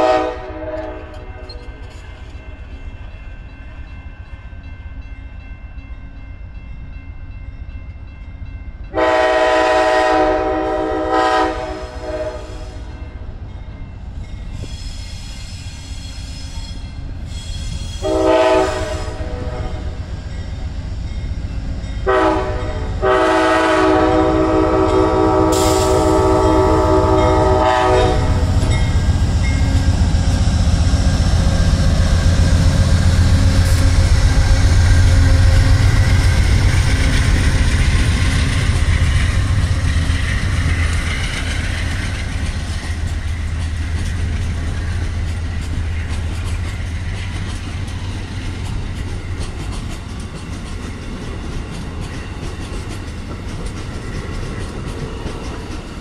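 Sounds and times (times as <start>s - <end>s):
locomotive horn blasts: 0.0s - 1.7s, 8.9s - 12.8s, 18.0s - 20.0s, 22.0s - 28.6s
train rumbling past: 0.0s - 56.0s.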